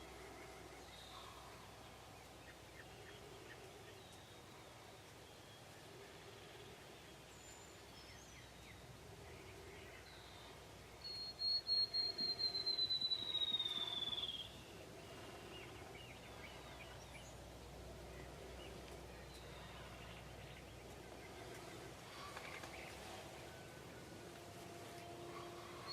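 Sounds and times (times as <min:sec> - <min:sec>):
faint bird chirps: 0:00.0 - 0:24.2
songbird whistling trill: 0:11.0 - 0:14.6.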